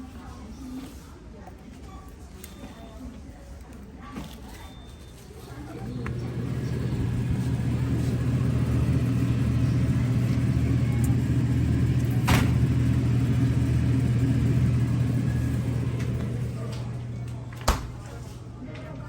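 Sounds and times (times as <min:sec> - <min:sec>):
low mechanical rumble: 0:05.7 - 0:17.7.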